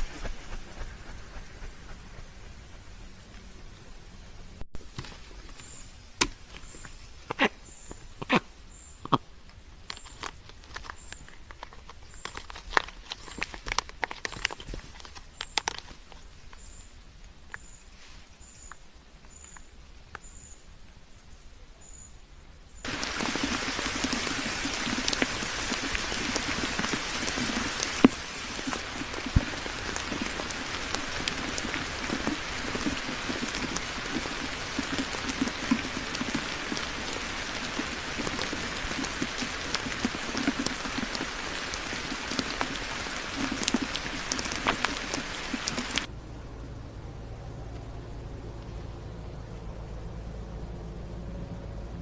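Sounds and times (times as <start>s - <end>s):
rain pattering: 0.0s - 3.5s, 9.9s - 16.2s, 22.8s - 46.1s.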